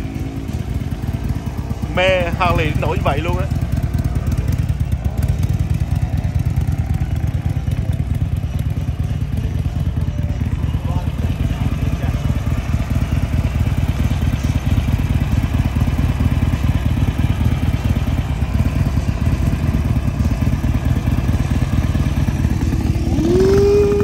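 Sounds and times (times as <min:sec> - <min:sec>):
motorcycle engine rumbling: 0:00.0 - 0:24.0.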